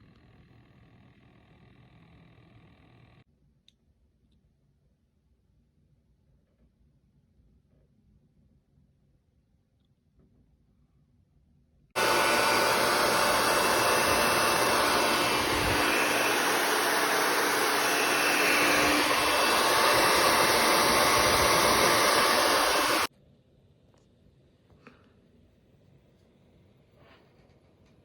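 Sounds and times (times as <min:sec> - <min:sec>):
laptop cooling fans whooshing: 0:12.0 - 0:23.1.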